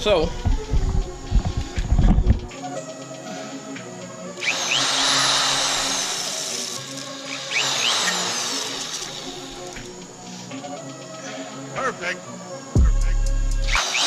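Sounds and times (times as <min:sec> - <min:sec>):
power drill whining through steel: 0:04.4 - 0:10.3, 0:13.7 - 0:14.0.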